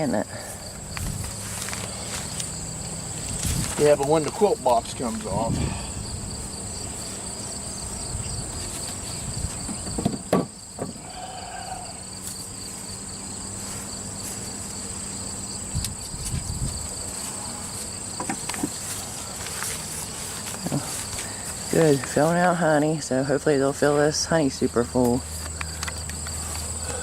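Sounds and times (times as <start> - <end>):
high-pitched insect chorus: 0.0 - 27.0
honey bees humming: 0.0 - 27.0
wooden knocks on hive boxes: 9.5 - 11.0, 18.2 - 18.8.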